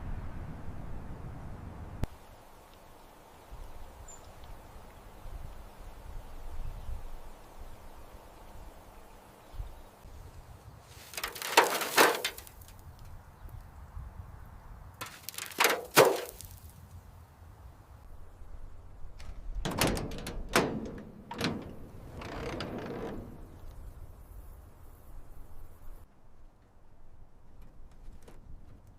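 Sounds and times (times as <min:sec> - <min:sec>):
sharp knocks and clatters: 0:11.0 - 0:12.7, 0:15.0 - 0:16.4, 0:19.2 - 0:23.7.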